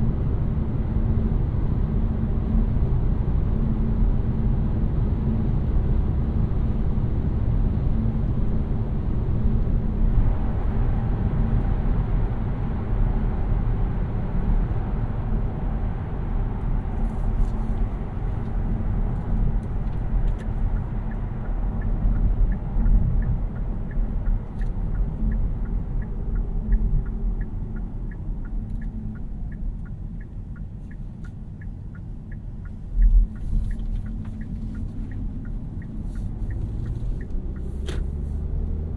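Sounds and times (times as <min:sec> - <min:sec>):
road and tyre rumble inside car: 0:00.0 - 0:38.9
turn signal ticking: 0:16.6 - 0:38.9.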